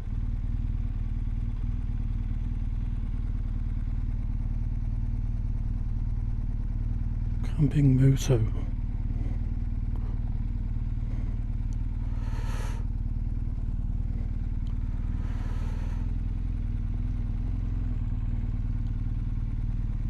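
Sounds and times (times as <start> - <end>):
motorcycle engine running: 0.0 - 20.0
short hissing noises: 12.1 - 12.8, 15.1 - 16.0.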